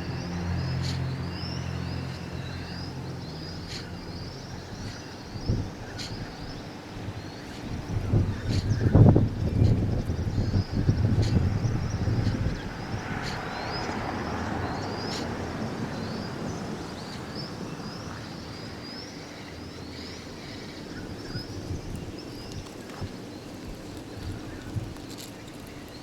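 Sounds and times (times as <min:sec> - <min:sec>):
low rumble: 0:00.0 - 0:14.2
birds chirping: 0:00.0 - 0:26.0.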